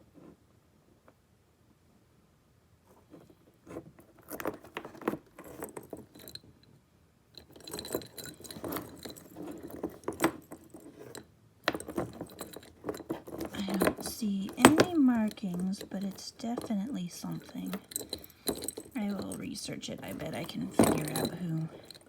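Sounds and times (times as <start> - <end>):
metal charm bracelet jingling: 4.3 - 6.5, 7.4 - 22.0.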